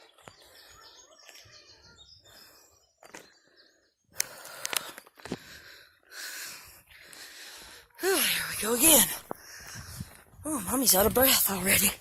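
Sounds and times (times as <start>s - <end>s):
birds chirping faintly: 0.0s - 9.9s.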